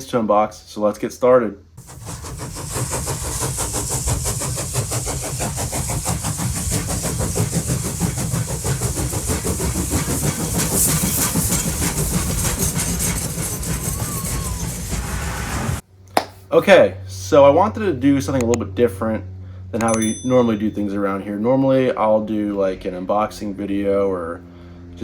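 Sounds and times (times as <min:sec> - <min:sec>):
train rumbling with rapid beat: 0:01.8 - 0:15.8.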